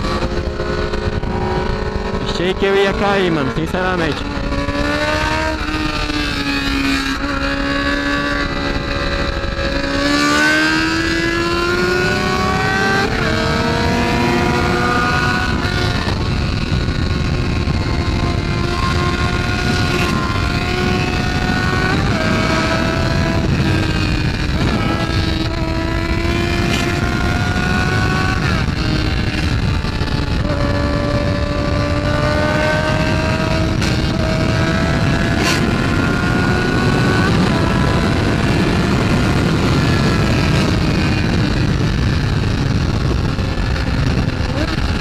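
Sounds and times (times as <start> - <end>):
motorcycle engine accelerating: 0.0 - 45.0
wind rush on microphone: 0.0 - 45.0.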